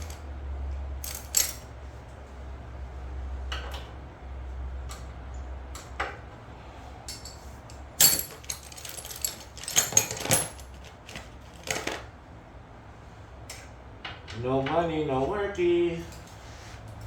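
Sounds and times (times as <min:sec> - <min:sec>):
metal tools clicking and clanking: 0:00.0 - 0:00.2, 0:01.0 - 0:01.7, 0:07.0 - 0:12.0.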